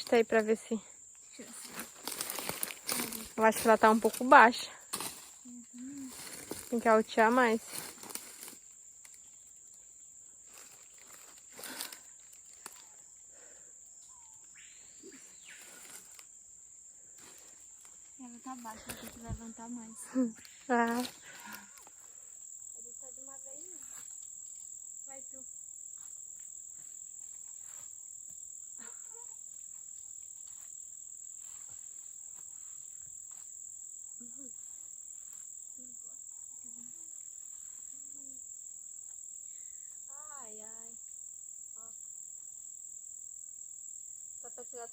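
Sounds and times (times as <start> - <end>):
high-pitched insect drone: 0.0 - 44.9
faint rustles and clicks: 1.3 - 9.2.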